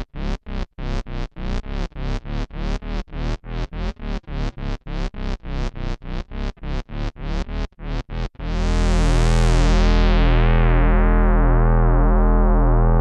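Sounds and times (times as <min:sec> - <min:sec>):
synth bass guitar notes: 0:05.7 - 0:13.0.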